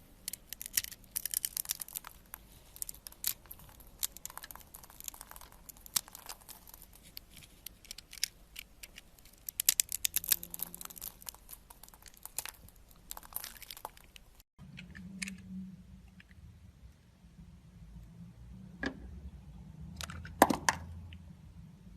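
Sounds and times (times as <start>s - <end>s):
knife carving soap: 0.1s - 14.3s.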